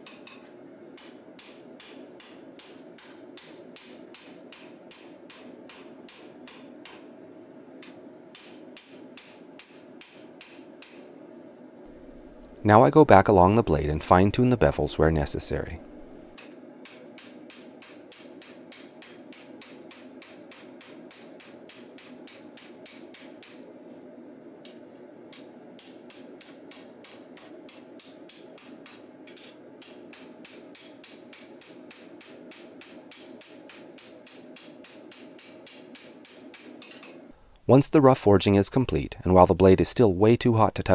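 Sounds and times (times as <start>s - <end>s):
hammer striking steel on anvil: 0.0s - 7.1s, 7.8s - 11.1s, 16.4s - 23.7s, 24.6s - 37.2s.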